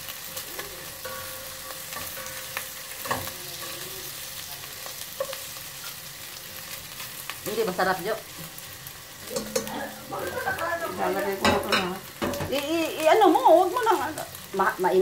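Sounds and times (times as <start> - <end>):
meat sizzling in a pot: 0.0 - 15.0
utensil scraping a pot: 9.2 - 12.5.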